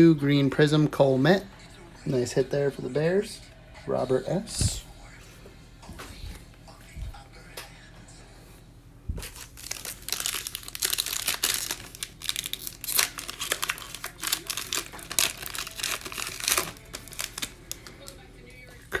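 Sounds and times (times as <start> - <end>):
wrapper crinkling and tearing: 9.2 - 18.2.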